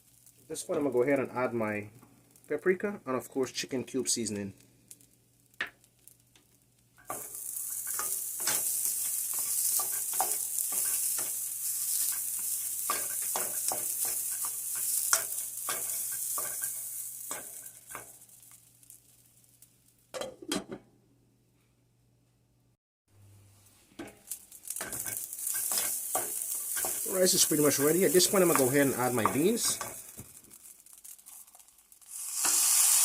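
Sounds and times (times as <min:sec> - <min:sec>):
rice sizzling in oil: 0:00.0 - 0:02.8, 0:03.6 - 0:20.1, 0:23.4 - 0:33.0
utensil stirring and scraping: 0:24.8 - 0:30.1.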